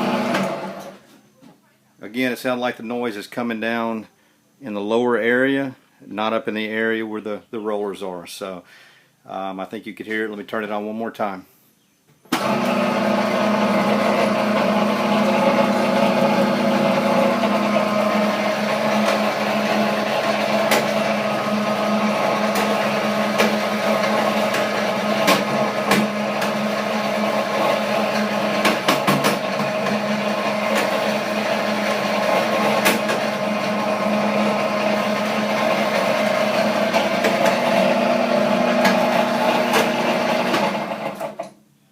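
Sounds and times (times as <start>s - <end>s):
motor humming: 12.4s - 41.4s.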